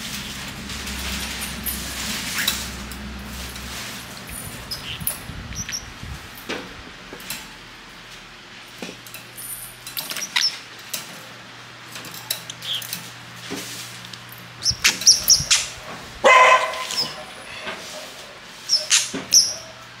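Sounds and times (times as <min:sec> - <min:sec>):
parrots chirping: 0:01.7 - 0:02.7, 0:04.1 - 0:06.1, 0:10.0 - 0:10.7, 0:12.3 - 0:13.2, 0:14.5 - 0:17.8, 0:18.6 - 0:19.9
parrots squawking: 0:02.1 - 0:02.8, 0:04.2 - 0:06.0, 0:10.1 - 0:10.7, 0:12.4 - 0:13.2, 0:14.6 - 0:18.0, 0:18.6 - 0:19.9.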